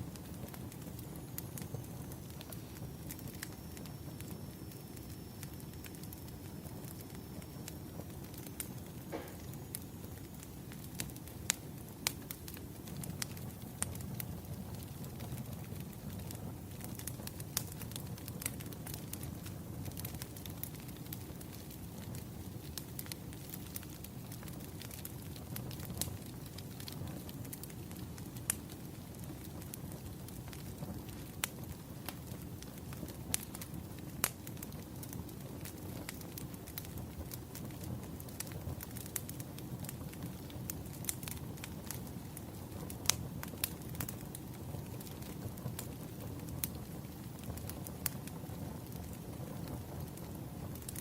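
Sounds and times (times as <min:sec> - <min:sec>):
sharp pops from fire: 0:00.0 - 0:51.0
wood fire crackling: 0:00.0 - 0:51.0.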